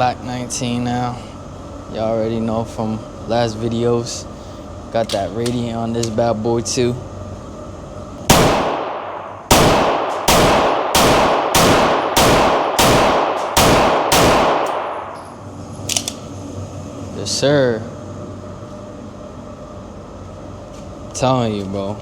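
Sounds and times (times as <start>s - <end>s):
pistol shots ringing indoors: 8.3s - 15.3s.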